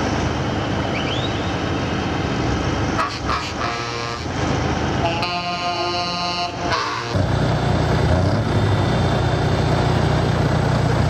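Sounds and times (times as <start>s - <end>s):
truck diesel engines rumbling: 0.0s - 11.0s
truck air horn blast: 3.0s - 4.4s, 5.0s - 7.3s.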